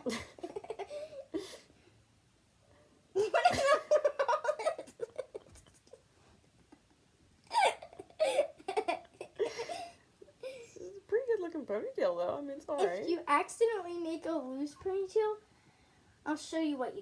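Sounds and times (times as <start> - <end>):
person laughing: 3.2 - 6.0.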